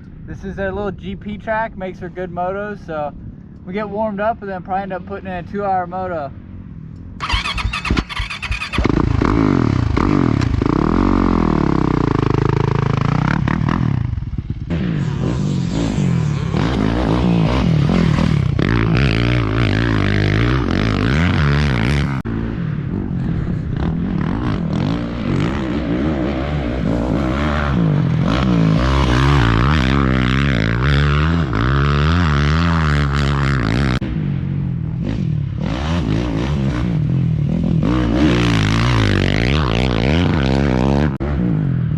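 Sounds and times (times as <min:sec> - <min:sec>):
dirt bike engine revving: 0:07.2 - 0:41.8.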